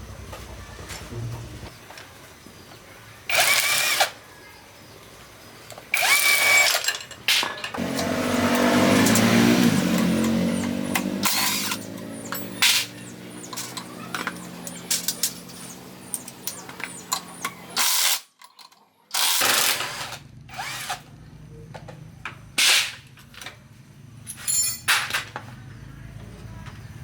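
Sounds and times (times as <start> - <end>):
handheld power tool running: 3.3 - 4.2, 5.9 - 6.9, 7.8 - 18.2, 19.2 - 21.0
tools and parts clicking: 3.3 - 4.2, 5.6 - 21.1, 21.7 - 25.6.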